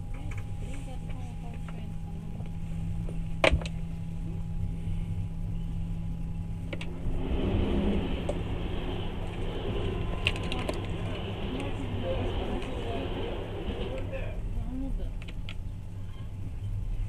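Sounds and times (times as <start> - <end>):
train rumbling from inside carriage: 0.0 - 17.0
passing train rushing: 6.6 - 16.4.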